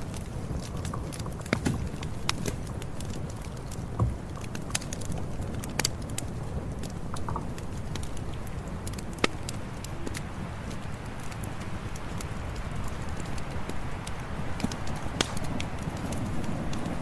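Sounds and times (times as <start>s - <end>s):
burning wood popping: 0.0s - 17.0s
campfire crackling: 0.0s - 17.0s.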